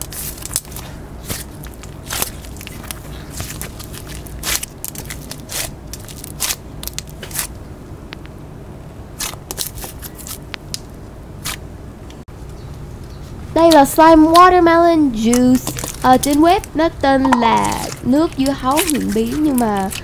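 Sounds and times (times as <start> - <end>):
slime squished by hand: 0.0 - 7.5, 15.3 - 20.0.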